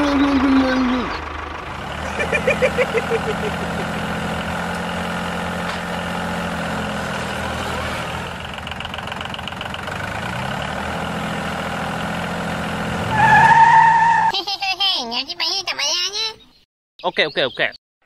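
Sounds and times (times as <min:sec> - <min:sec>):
tractor engine running: 0:00.0 - 0:13.3.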